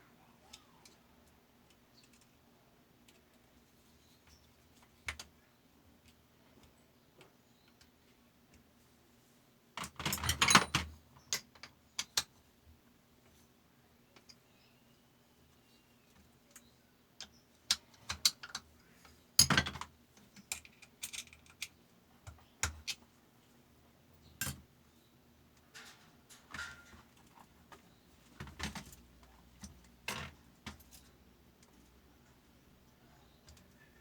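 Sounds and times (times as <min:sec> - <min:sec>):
metal parts and tools clinking: 0:25.7 - 0:27.2.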